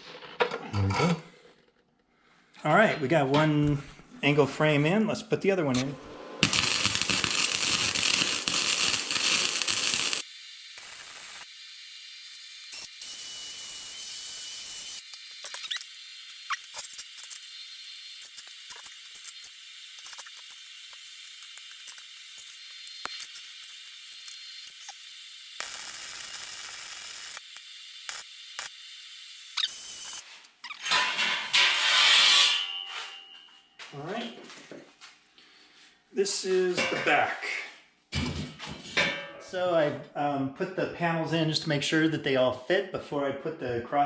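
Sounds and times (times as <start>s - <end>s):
welding arc crackling and hissing: 6.4s - 30.8s.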